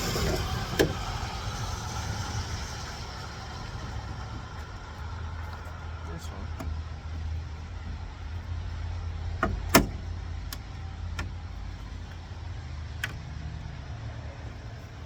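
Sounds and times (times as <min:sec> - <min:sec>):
sharp clicks and knocks: 0:06.5 - 0:13.4.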